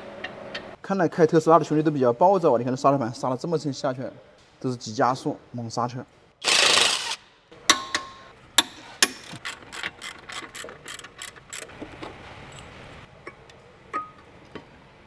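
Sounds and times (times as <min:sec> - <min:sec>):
ratchet wrench clicking: 0:09.0 - 0:11.8.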